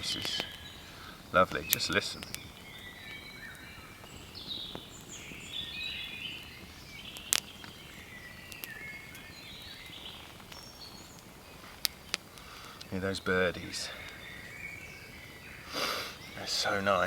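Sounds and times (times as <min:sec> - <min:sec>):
sharp crack: 0:00.0 - 0:05.4, 0:06.3 - 0:09.3, 0:09.9 - 0:14.2
birds singing: 0:00.0 - 0:17.0.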